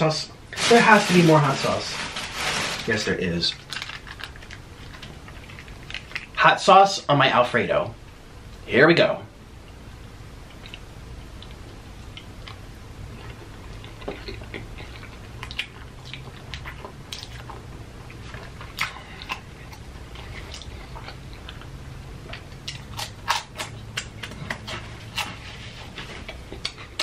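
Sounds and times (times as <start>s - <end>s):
person chewing noodles: 10.5s - 27.0s.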